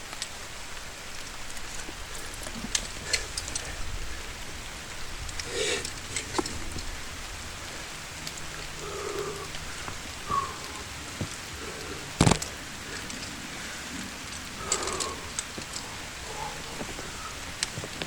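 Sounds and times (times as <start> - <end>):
steady rain falling: 0.0 - 18.0
drop ticks: 8.2 - 18.0.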